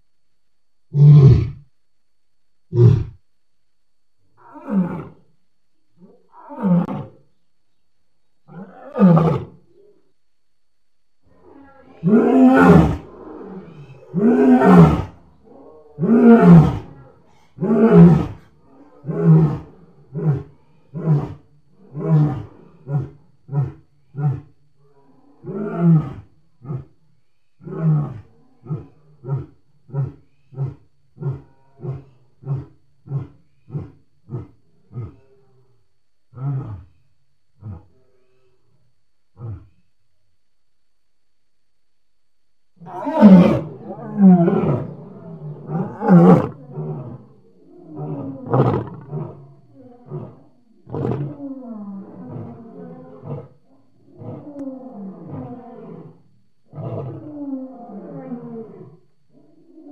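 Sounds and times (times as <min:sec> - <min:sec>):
lion roaring: 0:11.4 - 0:24.5, 0:36.3 - 0:37.0, 0:42.8 - 0:59.9
lion moaning calls: 0:39.4 - 0:39.8, 0:42.8 - 0:59.9.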